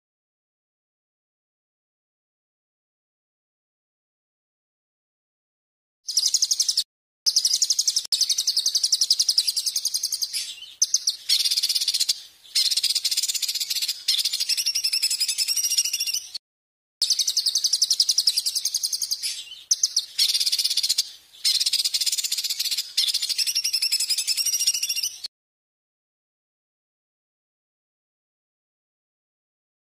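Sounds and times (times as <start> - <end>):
songbird trilling: 6.1 - 16.4, 17.0 - 25.3.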